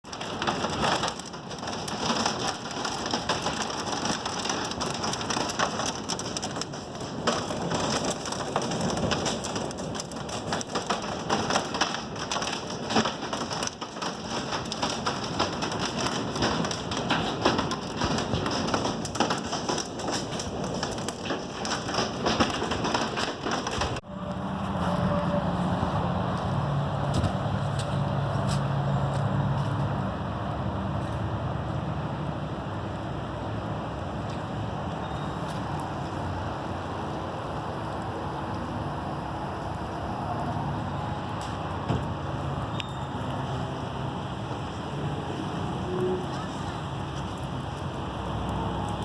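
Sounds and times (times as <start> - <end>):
heavy rain pouring: 0.0 - 24.1.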